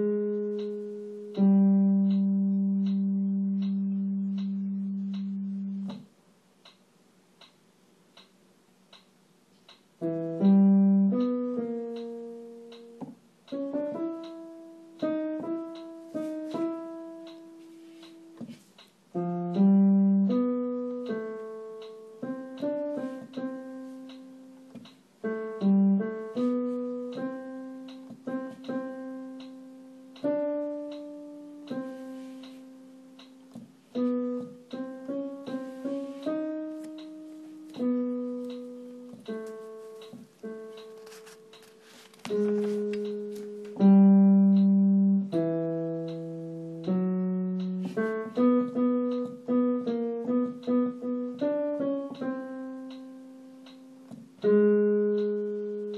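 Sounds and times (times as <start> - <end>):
piano melody: 0.0 - 6.1, 10.0 - 55.9
faint regular ticks: 15.0 - 19.6, 20.3 - 43.9, 45.3 - 55.9.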